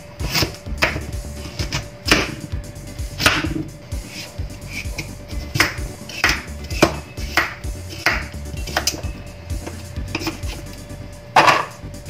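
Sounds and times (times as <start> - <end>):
knife chopping on wooden board: 1.6 - 2.4, 3.2 - 4.3, 5.5 - 9.0.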